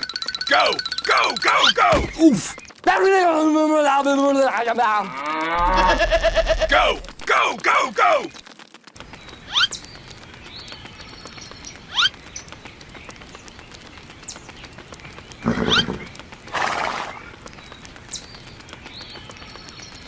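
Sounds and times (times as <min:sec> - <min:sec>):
animal calls: 0:05.0 - 0:07.1, 0:15.4 - 0:17.4.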